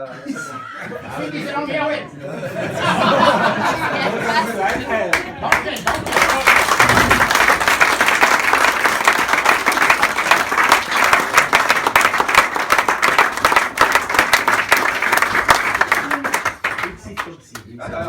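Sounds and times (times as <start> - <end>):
group of people applauding: 3.2 - 17.7.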